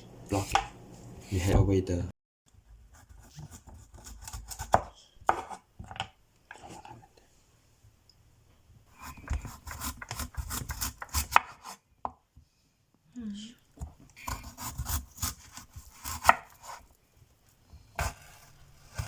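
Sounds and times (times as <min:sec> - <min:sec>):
knife chopping on cutting board: 0:00.4 - 0:00.8, 0:03.1 - 0:06.0, 0:09.0 - 0:12.2, 0:14.3 - 0:16.8, 0:18.0 - 0:19.0.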